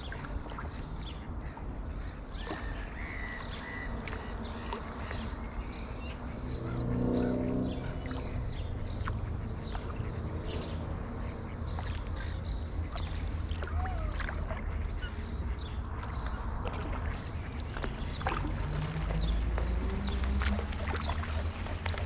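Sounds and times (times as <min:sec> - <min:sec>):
bird chirps: 0:00.0 - 0:19.6
paddle splashing in water: 0:00.0 - 0:22.0
wind rumble on microphone: 0:00.0 - 0:22.0.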